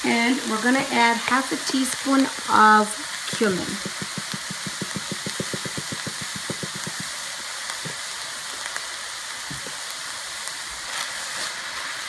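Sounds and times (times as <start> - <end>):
food sizzling in a frying pan: 0.0 - 12.0
spice jar tapping: 3.8 - 7.1.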